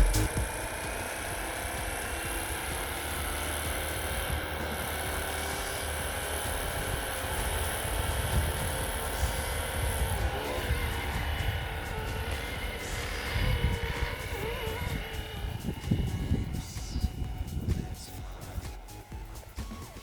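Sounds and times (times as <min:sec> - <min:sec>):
rc helicopter motor whine: 0:00.0 - 0:18.0
wind on microphone: 0:03.6 - 0:18.8.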